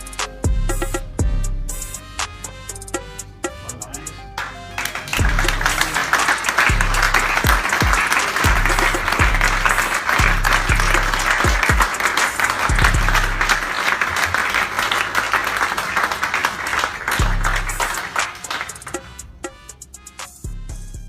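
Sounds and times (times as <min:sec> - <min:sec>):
music with deep bass line: 0:00.0 - 0:11.9, 0:12.6 - 0:13.7, 0:17.2 - 0:18.0, 0:18.7 - 0:21.0
pounding bass drum beat: 0:00.5 - 0:02.0, 0:06.7 - 0:11.9, 0:12.7 - 0:13.7, 0:17.2 - 0:17.9
crowd applauding: 0:04.4 - 0:19.2.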